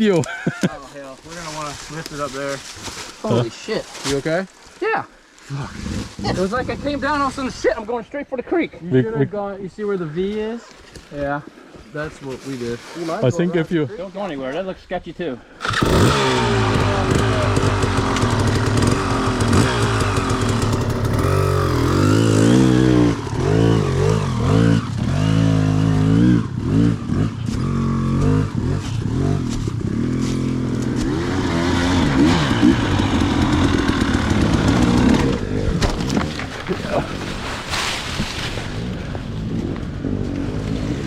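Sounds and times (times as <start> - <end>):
dirt bike engine revving: 15.6 - 37.6.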